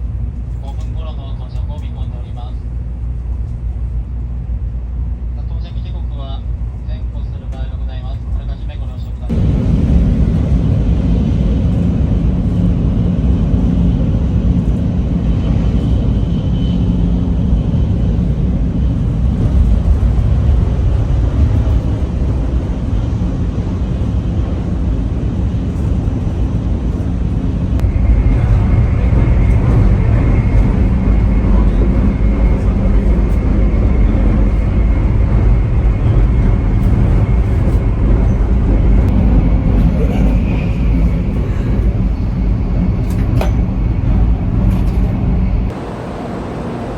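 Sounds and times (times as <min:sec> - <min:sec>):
high whine: 0:27.0 - 0:46.9.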